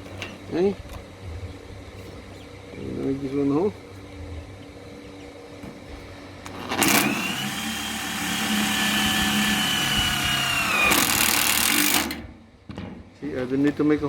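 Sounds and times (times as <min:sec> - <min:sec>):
power drill boring into metal: 0:06.6 - 0:12.2.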